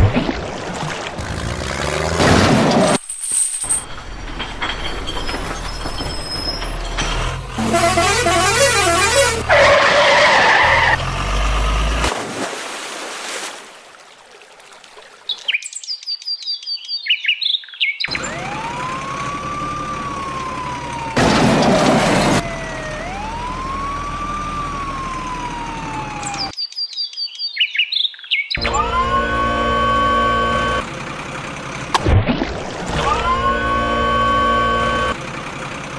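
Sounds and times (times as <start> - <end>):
warbling cartoon horn: 7.6 - 9.9, 28.6 - 30.8, 33.0 - 35.2
cartoon siren wailing: 22.4 - 26.5, 28.6 - 30.8, 32.9 - 35.2.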